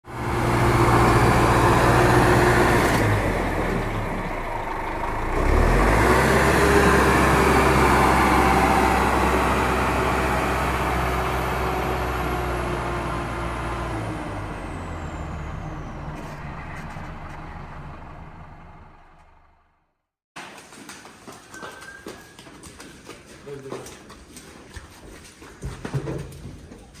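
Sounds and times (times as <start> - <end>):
heavy vehicle engine running: 0.0 - 19.9.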